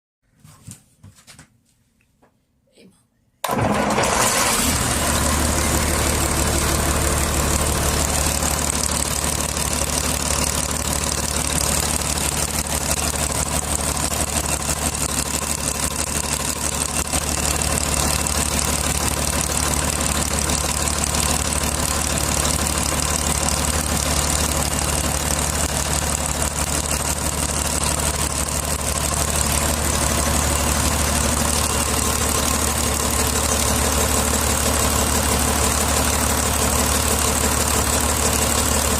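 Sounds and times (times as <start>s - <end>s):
diesel engine idling: 3.5s - 38.9s.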